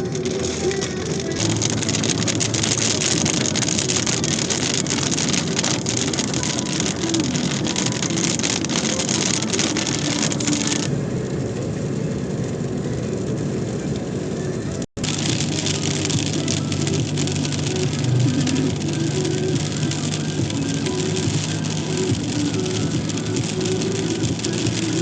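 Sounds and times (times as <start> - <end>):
heavy rain hiss: 0.0 - 10.9, 15.0 - 25.0
wind: 9.9 - 14.9.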